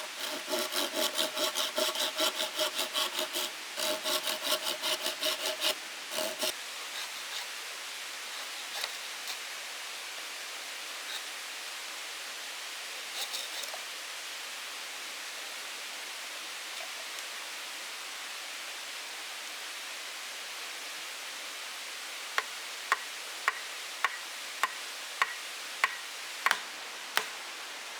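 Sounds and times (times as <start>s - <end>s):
saw cutting wood: 0.0s - 7.6s
steady hiss: 5.0s - 27.9s.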